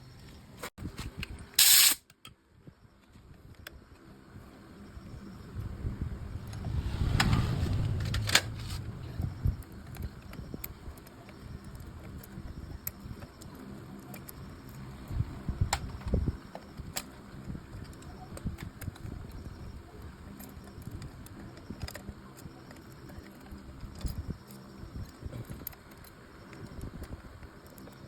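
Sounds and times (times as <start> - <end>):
low hum: 4.3 - 12.0
low rumble: 4.9 - 10.9.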